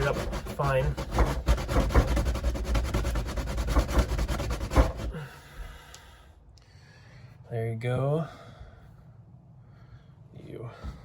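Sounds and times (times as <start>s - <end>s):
wax rasping on cheese grater: 0.0s - 5.2s.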